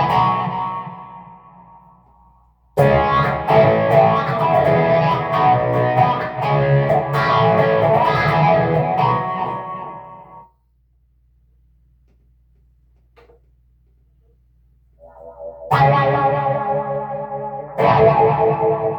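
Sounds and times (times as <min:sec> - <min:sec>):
overdriven electric guitar: 0:00.0 - 0:01.8, 0:02.8 - 0:10.4, 0:15.0 - 0:18.9.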